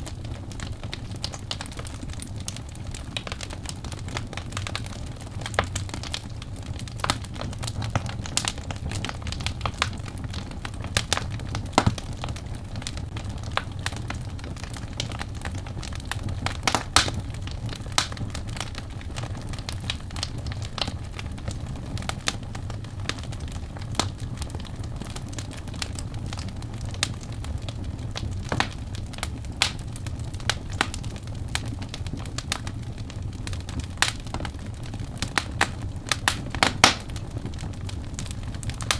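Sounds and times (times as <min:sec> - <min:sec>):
logs crackling and popping: 0:00.0 - 0:38.9
low rush of flames: 0:00.0 - 0:38.9.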